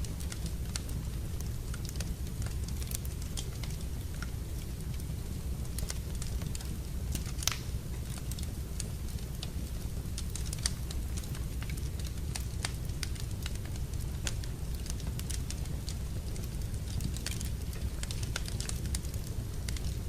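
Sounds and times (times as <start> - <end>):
low rumble of fire: 0.0 - 20.0
wood fire crackling: 0.0 - 20.0.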